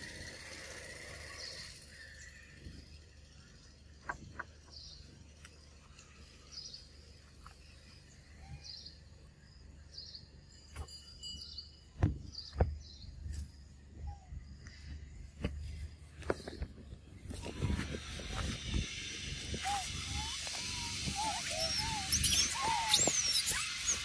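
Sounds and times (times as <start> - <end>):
faint forest background: 0.0 - 24.0
bird chirping: 0.2 - 24.0
loud thumps: 12.0 - 12.9.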